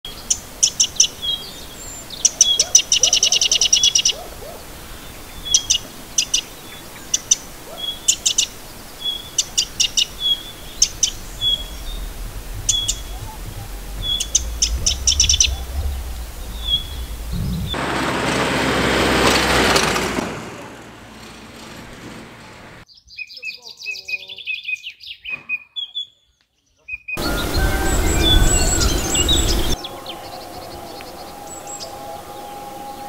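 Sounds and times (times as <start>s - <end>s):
songbirds singing: 0.1s - 17.8s, 22.9s - 33.0s
low rumble: 9.4s - 18.6s, 27.2s - 33.0s.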